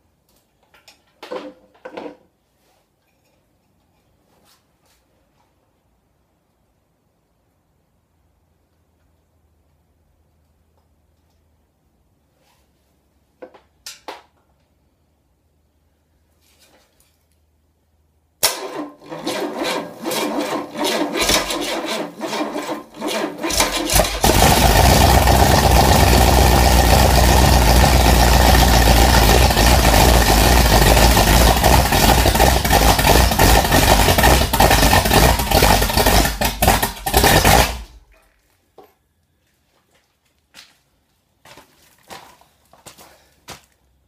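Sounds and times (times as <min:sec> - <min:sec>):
starter cranking engine: 0:18.4 - 0:38.0
engine running loudly: 0:23.5 - 0:37.8.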